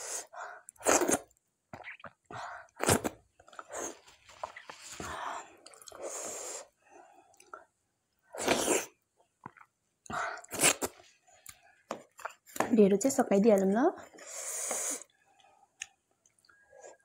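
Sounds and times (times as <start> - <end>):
wet chewing and mouth noises: 0.7 - 6.0, 8.4 - 12.6, 15.0 - 16.6.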